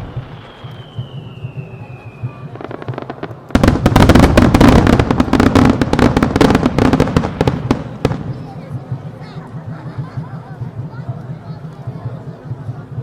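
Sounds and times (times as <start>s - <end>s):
fireworks bursting and crackling: 0.0s - 9.2s.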